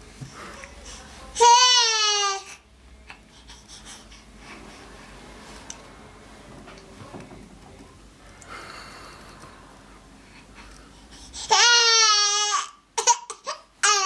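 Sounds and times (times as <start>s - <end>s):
baby crying: 11.4s - 14.0s.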